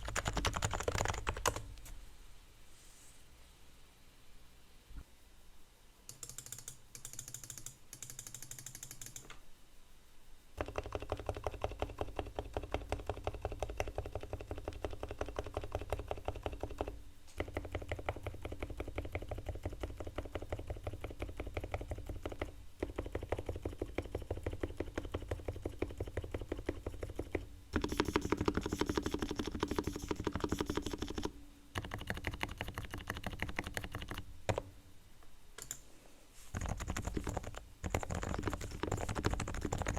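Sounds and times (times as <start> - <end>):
soft keyboard typing: 0.0 - 1.9, 6.1 - 9.4, 10.6 - 34.7, 35.6 - 35.9, 36.5 - 39.9.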